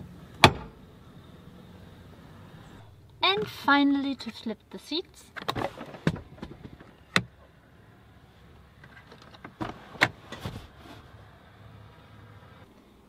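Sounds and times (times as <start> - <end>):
seatbacks clunking and clicking: 5.3 - 7.5, 8.6 - 11.2.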